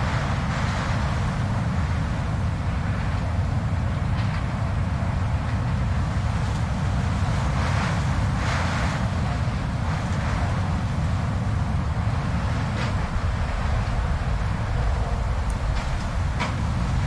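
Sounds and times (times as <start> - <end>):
blizzard wind blowing: 11.1 - 17.0.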